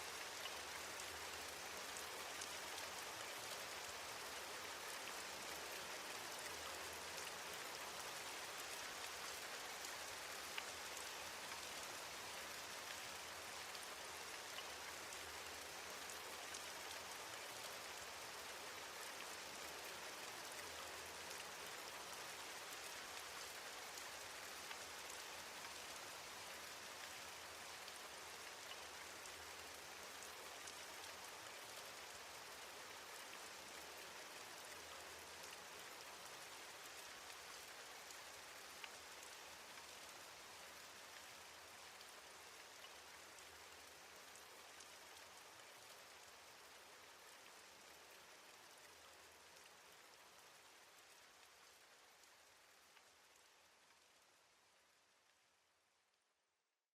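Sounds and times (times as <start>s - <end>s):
steady rain hiss: 0.0s - 56.7s.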